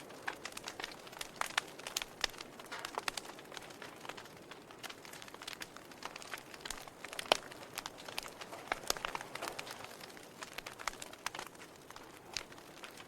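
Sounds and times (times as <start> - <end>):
fire crackling and popping: 0.0 - 13.0.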